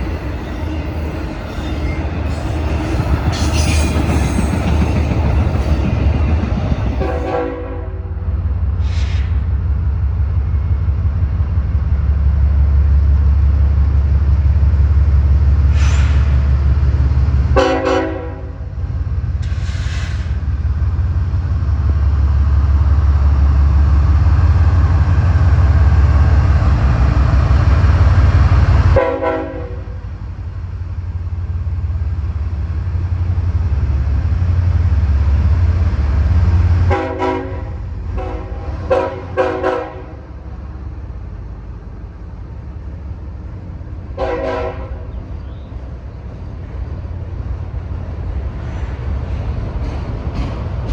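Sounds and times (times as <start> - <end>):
train rumbling past: 0.0 - 50.9
locomotive horn blasts: 7.0 - 8.1, 17.6 - 18.7, 29.0 - 30.0, 36.9 - 40.2, 44.2 - 45.1.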